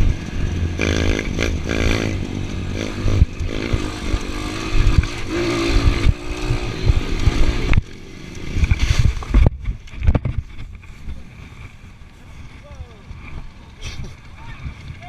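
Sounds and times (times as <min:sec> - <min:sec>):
motorcycle engine revving: 0:00.0 - 0:11.9
wind rumble on microphone: 0:00.0 - 0:15.0.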